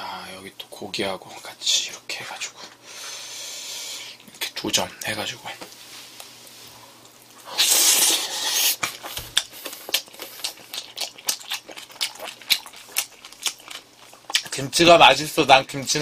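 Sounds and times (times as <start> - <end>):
wet smacking mouth noise: 7.5 - 14.6
chewing clicks: 8.8 - 14.6.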